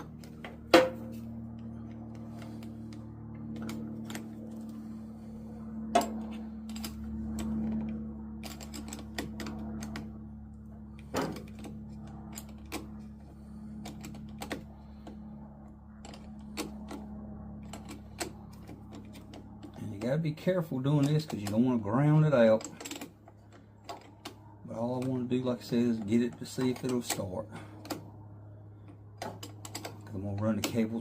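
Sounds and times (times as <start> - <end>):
steady low hum: 0.0 - 31.0
hand tool clicks and knocks: 20.8 - 28.0, 29.2 - 31.0.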